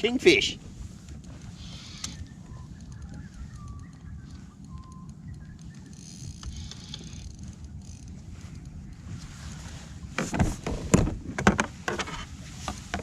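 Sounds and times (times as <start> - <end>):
wind rumble on microphone: 0.0 - 13.0
small clicks: 1.2 - 9.0.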